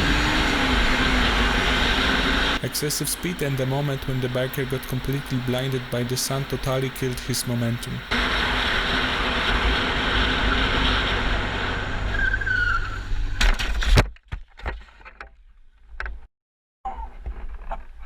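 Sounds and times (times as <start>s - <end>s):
tyre squeal: 12.1s - 13.1s.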